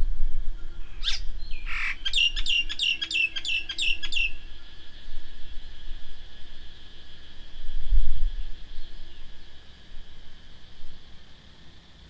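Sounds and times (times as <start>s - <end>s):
songbird calling: 0.6s - 5.9s, 8.4s - 10.1s.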